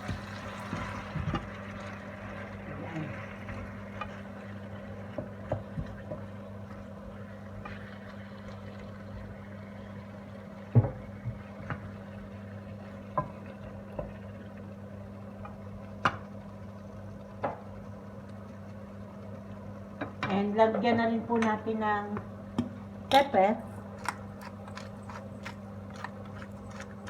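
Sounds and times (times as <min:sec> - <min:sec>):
cooking hiss in a pot: 0:00.0 - 0:20.0.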